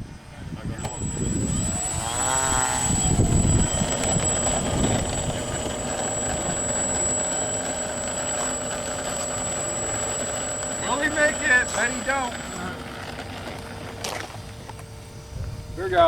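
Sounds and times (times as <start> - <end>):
model airplane motor whining: 0.6 - 16.0.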